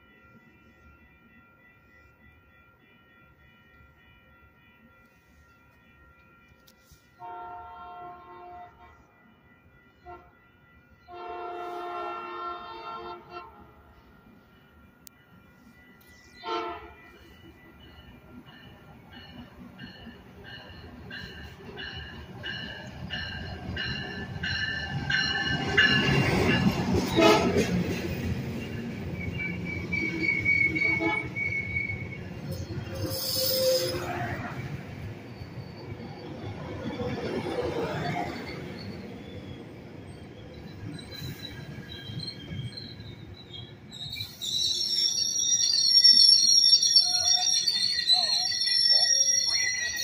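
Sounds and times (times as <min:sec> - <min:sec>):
train bell ringing: 0:00.0 - 0:50.0
train rumbling past: 0:03.1 - 0:50.0
high-pitched wheel squeal: 0:29.2 - 0:34.6, 0:44.0 - 0:50.0.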